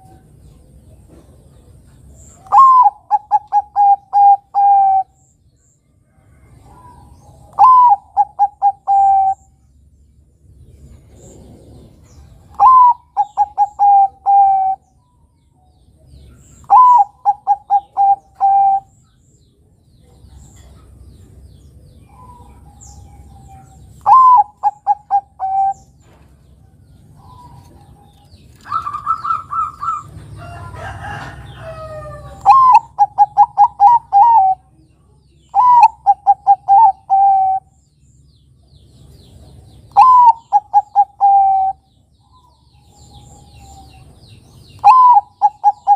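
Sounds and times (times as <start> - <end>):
bird chirping: 0.0 - 45.9
dove cooing: 2.4 - 5.2, 6.7 - 9.5, 12.5 - 14.8, 16.6 - 18.9, 22.1 - 25.9, 27.2 - 34.7, 35.5 - 37.7, 39.9 - 41.9, 44.8 - 45.9.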